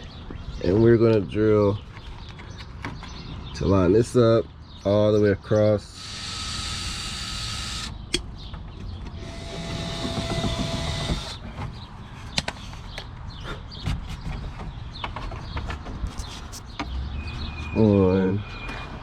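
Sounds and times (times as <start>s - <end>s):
power drill drilling: 6.0s - 8.0s, 9.2s - 11.4s
sharp clicks and knocks: 8.1s - 11.7s.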